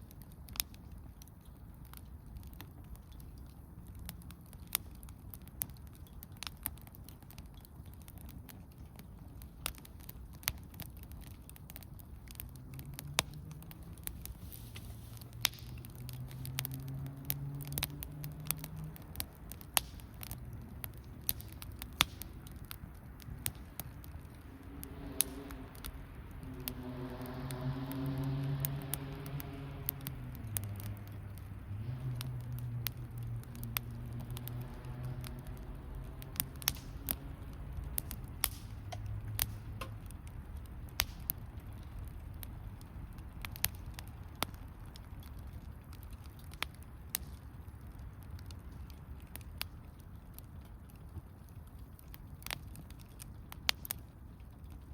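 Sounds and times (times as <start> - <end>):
campfire crackling and popping: 0.0 - 54.9
distant engine hum: 0.0 - 54.9.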